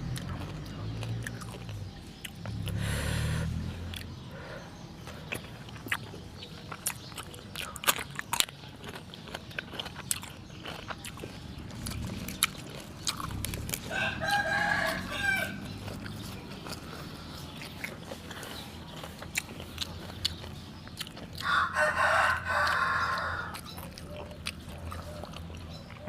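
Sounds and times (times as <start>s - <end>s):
eating and utensil clicks: 0.1s - 2.8s, 3.9s - 4.2s, 5.0s - 13.9s, 15.6s - 21.5s, 22.6s - 26.0s
rooster crowing: 13.8s - 15.7s, 21.4s - 23.6s.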